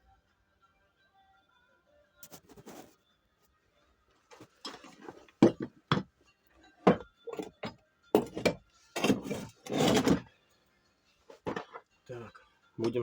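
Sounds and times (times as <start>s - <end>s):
metal parts knocking and clinking: 6.8s - 10.3s
metal rattling scrape: 8.2s - 10.3s.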